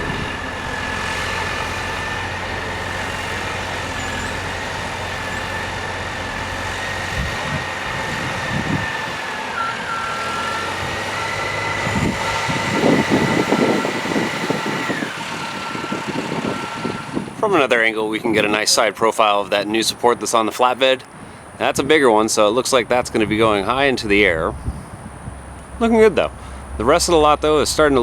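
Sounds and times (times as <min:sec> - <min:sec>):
high thin whine: 0:00.0 - 0:11.0
heavy machinery engine running: 0:00.0 - 0:17.8, 0:22.8 - 0:28.0.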